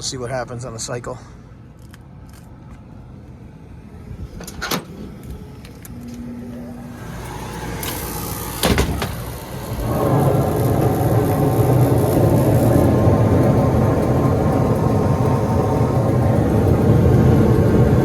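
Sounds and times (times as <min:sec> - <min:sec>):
heating unit clicks: 0:04.4 - 0:17.2
burners rushing and rumbling: 0:06.4 - 0:18.0
draft inducer spinning up: 0:06.6 - 0:18.0.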